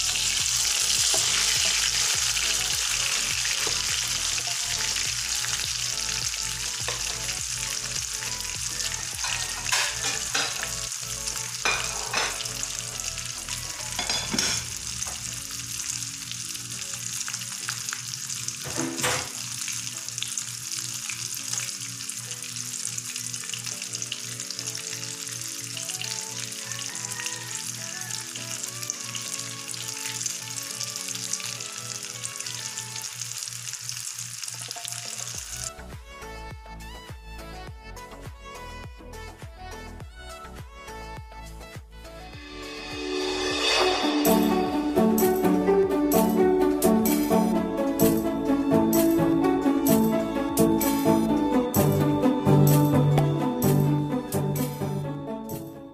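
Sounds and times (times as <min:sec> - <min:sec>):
food sizzling in hot oil: 0:00.0 - 0:35.7, 0:42.4 - 0:45.9
oil popping and crackling: 0:00.0 - 0:35.7.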